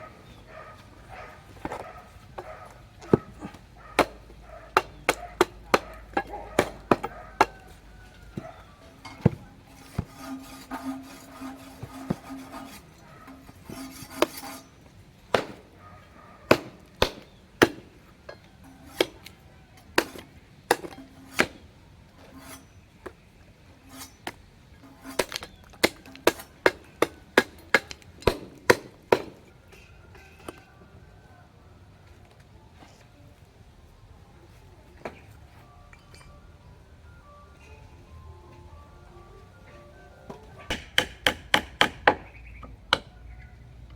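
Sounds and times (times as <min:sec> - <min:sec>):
sharp knocks: 0:40.7 - 0:42.3.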